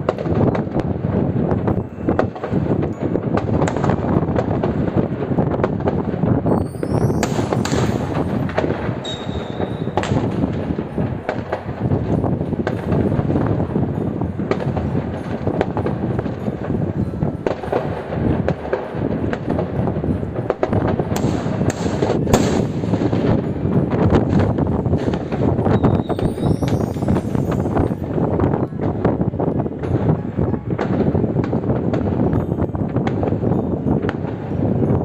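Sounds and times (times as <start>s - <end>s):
firework bangs and crackles: 0.0s - 35.0s
fireworks exploding: 0.0s - 35.0s
high firework whistle: 6.4s - 13.2s, 24.9s - 28.5s.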